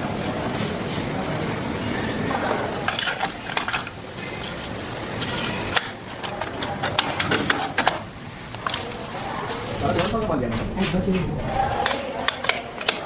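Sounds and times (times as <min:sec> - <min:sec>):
low workshop hum: 0:00.0 - 0:13.0
metal tools clicking and clinking: 0:02.8 - 0:08.0.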